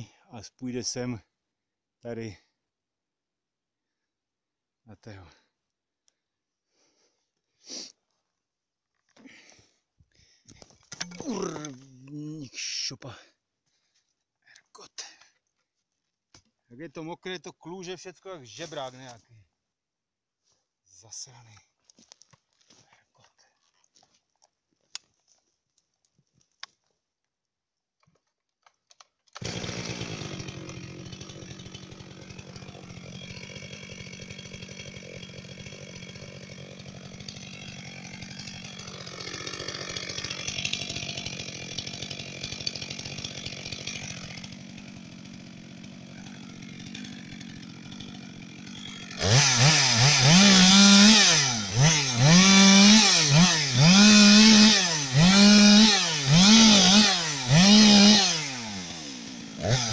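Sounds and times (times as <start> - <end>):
two-stroke chainsaw engine: 29.3 - 59.9.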